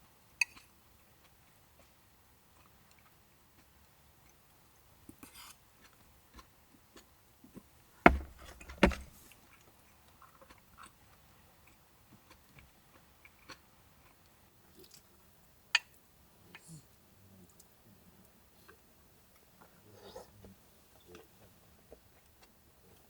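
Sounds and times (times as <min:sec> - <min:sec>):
sharp knocks: 0:08.1 - 0:09.1.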